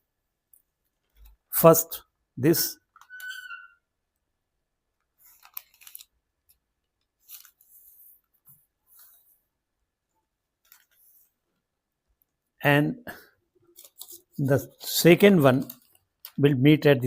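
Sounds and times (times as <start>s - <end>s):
paper rustling and crinkling: 5.2s - 9.4s, 10.6s - 11.4s, 13.7s - 16.3s.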